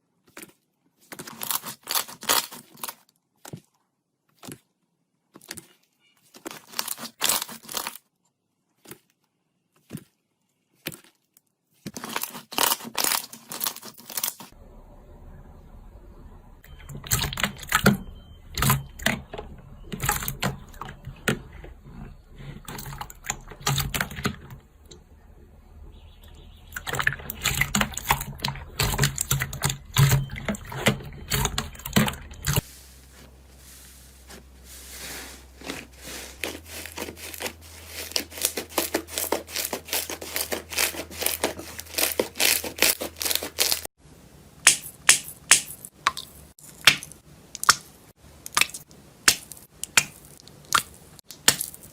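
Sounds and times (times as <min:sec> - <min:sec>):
slime popping and crackling: 0:11.8 - 0:14.5, 0:35.6 - 0:43.9, 0:48.5 - 0:51.9.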